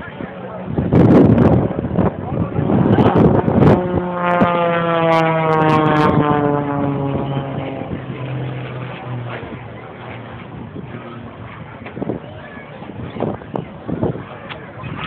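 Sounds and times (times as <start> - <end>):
aircraft flying past: 0.0 - 15.0.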